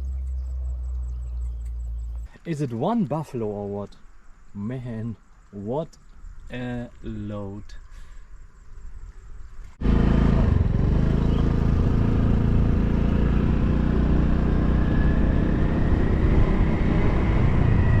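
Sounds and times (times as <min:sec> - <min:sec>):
road noise: 0:09.7 - 0:18.0
motorcycle engine running: 0:09.8 - 0:16.8.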